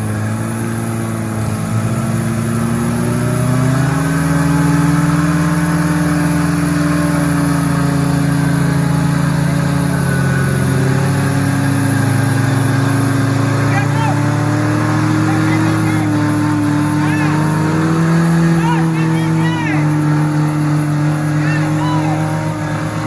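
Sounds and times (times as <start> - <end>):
engine running under load: 0.0 - 23.0.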